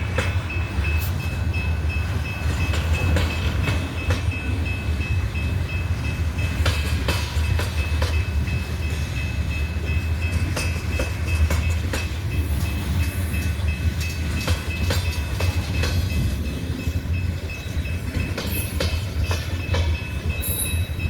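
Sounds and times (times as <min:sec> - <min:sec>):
train rumbling on track: 0:00.0 - 0:21.0
wheels and couplers clacking: 0:02.0 - 0:04.9, 0:09.9 - 0:21.0.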